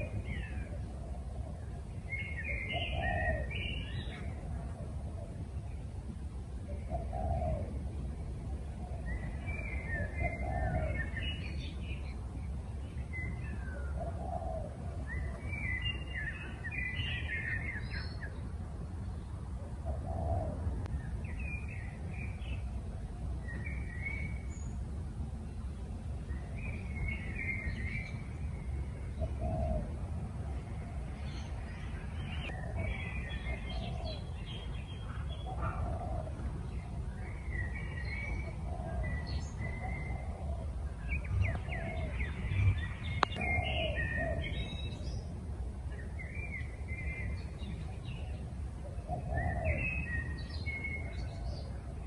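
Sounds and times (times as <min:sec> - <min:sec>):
birds chirping: 0:00.0 - 0:52.0
steady low rumble: 0:00.0 - 0:52.0.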